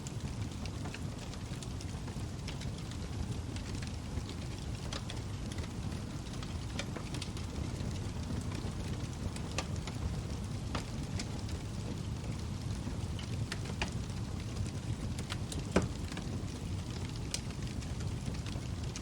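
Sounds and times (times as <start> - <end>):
log fire burning: 0.0 - 19.0
wood crackling and popping: 0.0 - 19.0.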